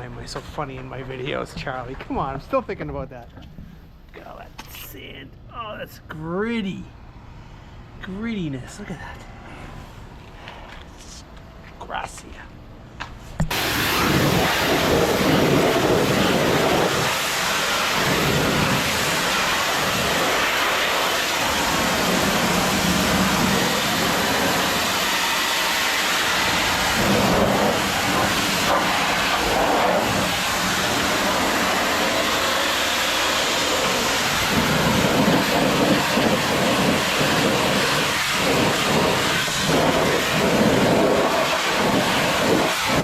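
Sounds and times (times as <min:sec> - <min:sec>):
pressure washer spraying: 0:13.4 - 0:43.0.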